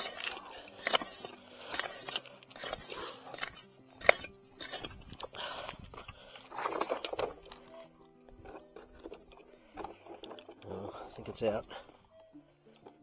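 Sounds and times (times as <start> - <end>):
pick striking gravelly ground: 0.0 - 7.4
faint steady tones: 0.0 - 13.0.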